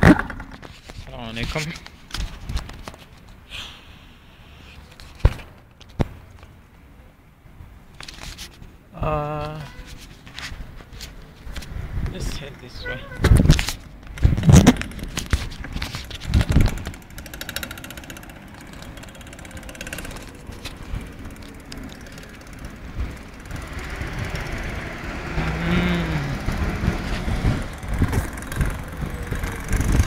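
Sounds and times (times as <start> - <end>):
vehicle driving past: 17.0 - 30.0.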